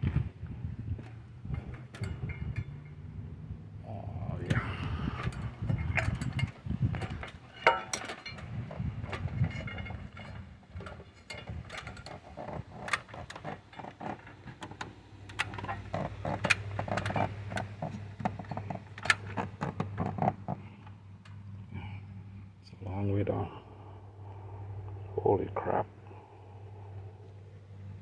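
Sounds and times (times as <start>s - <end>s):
ladder and tools clanking: 0.0s - 3.2s, 4.4s - 21.5s
low steady hum: 0.0s - 28.0s.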